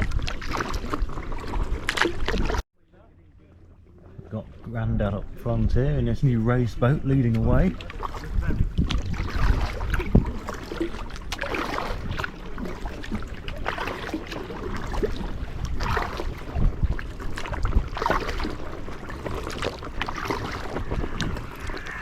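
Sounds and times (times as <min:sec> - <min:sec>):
paddle strokes splashing water: 0:00.0 - 0:02.6, 0:06.8 - 0:22.0
wind rumble on microphone: 0:04.1 - 0:13.2, 0:14.7 - 0:22.0.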